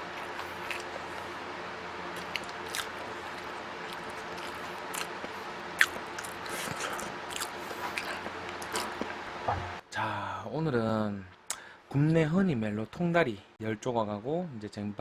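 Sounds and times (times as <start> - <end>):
chewing: 0.0 - 1.4, 2.1 - 9.8
faint steady hum: 0.0 - 15.0.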